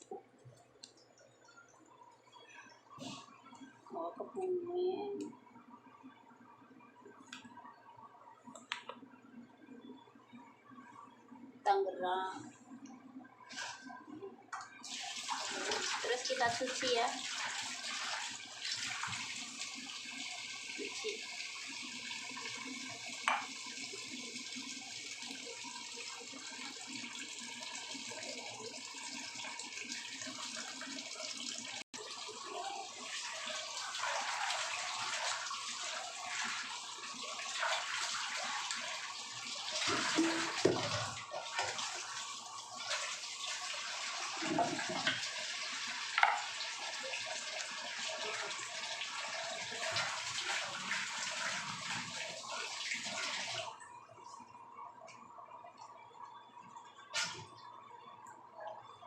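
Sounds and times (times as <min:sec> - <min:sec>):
tap water running into a sink: 0:14.6 - 0:53.7
water splashing: 0:32.3 - 0:53.6.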